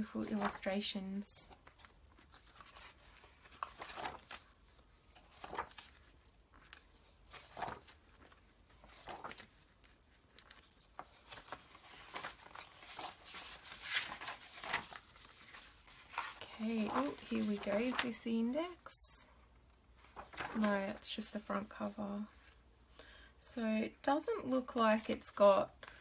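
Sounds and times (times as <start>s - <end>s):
paper rustling: 0.0s - 18.9s, 20.0s - 22.6s.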